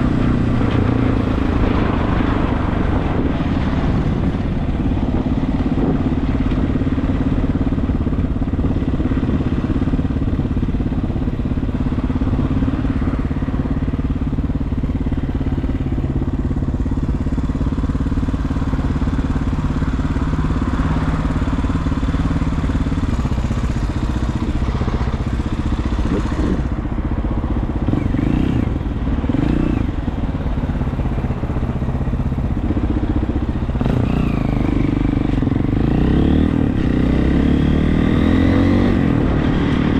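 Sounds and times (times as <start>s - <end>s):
wind noise: 0.0s - 13.5s
motorcycle engine running: 0.0s - 39.9s.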